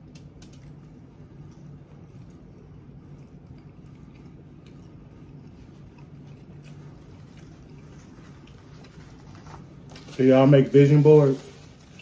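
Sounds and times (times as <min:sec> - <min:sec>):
wet chewing: 0:00.0 - 0:10.1
low hum: 0:00.0 - 0:12.0.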